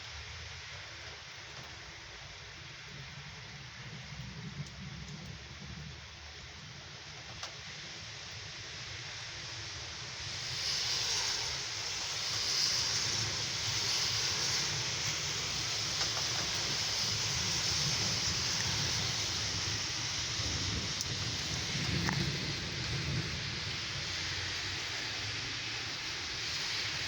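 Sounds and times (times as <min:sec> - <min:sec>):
heavy rain pouring: 0:12.3 - 0:27.0.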